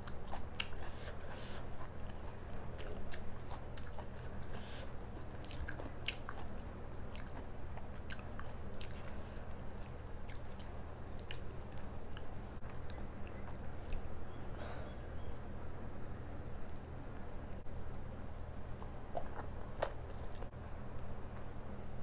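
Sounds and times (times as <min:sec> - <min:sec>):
chewing: 0:00.0 - 0:14.3, 0:17.5 - 0:20.5
steady low hum: 0:00.0 - 0:22.0.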